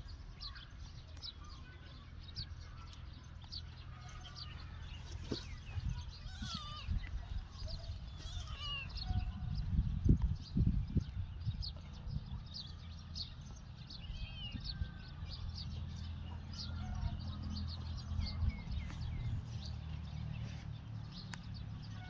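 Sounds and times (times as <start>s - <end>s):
small birds chirping: 0.0s - 22.0s
steady low rumble: 2.0s - 21.8s.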